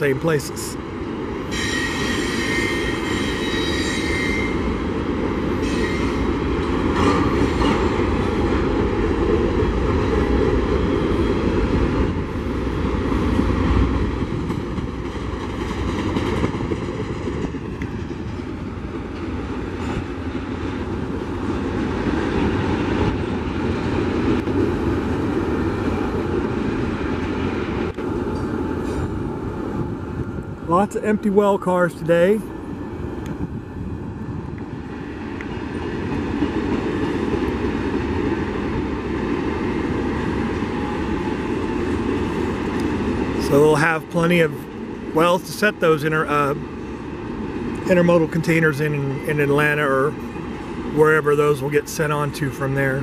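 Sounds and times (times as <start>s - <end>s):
freight train rolling past: 0.0s - 53.0s
high wheel squeal: 1.5s - 4.7s, 5.6s - 6.2s.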